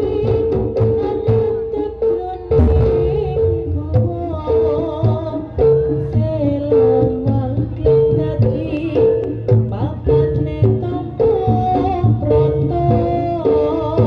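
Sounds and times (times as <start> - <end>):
held note: 2.5 - 5.6
wavering melody line: 2.5 - 6.1
drums beating: 2.5 - 14.0.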